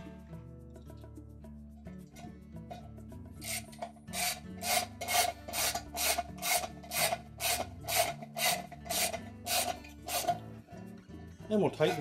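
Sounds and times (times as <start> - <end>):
socket ratchet clicking: 3.4 - 10.4.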